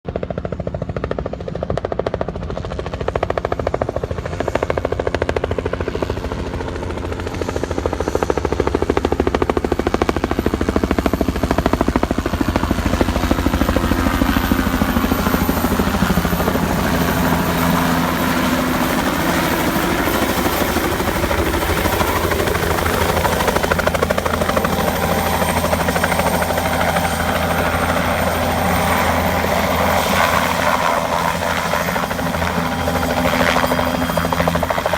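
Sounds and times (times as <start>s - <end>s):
helicopter rotor beating: 0.1s - 34.9s
turbine whine: 7.8s - 34.9s.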